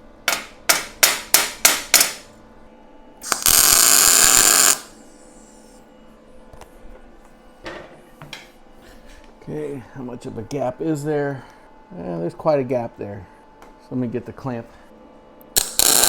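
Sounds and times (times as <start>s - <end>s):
sharp taps on steel: 0.3s - 2.3s
welding arc sizzling: 3.2s - 5.8s, 15.5s - 16.0s.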